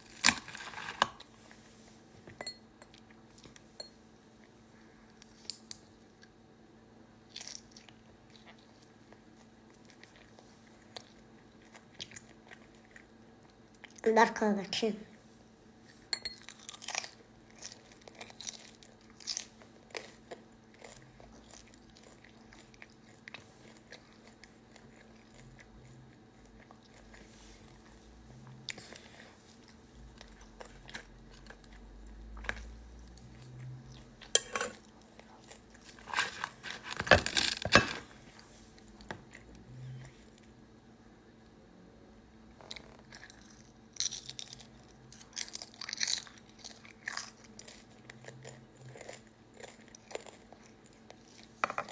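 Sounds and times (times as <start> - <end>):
chewing and crunching: 7.2 - 14.0, 15.8 - 40.5, 42.6 - 51.9.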